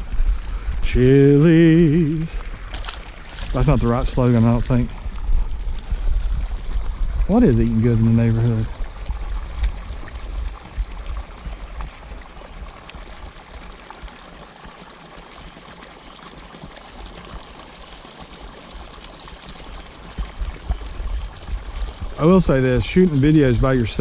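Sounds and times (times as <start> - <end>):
low rumble: 0.0 - 12.1
water splashing into pond: 0.0 - 24.0.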